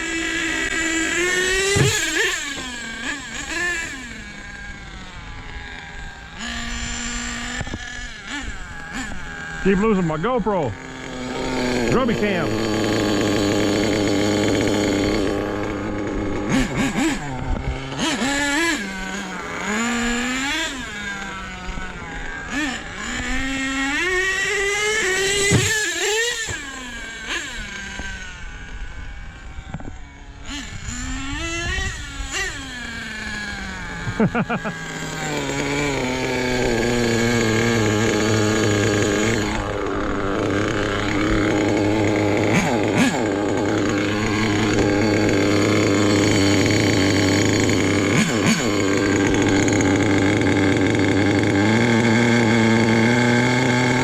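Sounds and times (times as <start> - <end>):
small nitro engine revving: 0.0 - 54.0.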